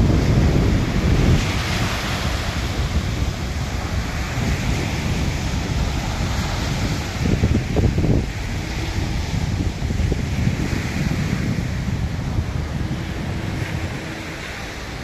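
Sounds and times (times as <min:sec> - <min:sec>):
surf washing onto shore: 0:00.0 - 0:15.0
wind buffeting microphone: 0:00.0 - 0:15.0.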